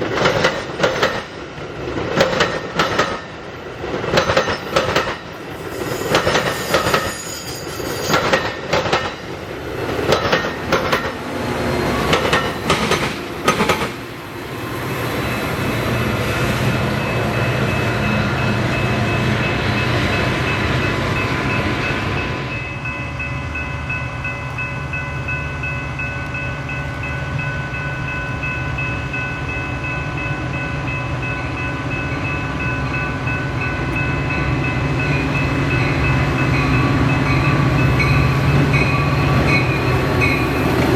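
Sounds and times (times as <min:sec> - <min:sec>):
train wheels clattering over rail joints: 0:00.0 - 0:11.2, 0:12.0 - 0:14.0
train rolling rumble: 0:00.0 - 0:40.9.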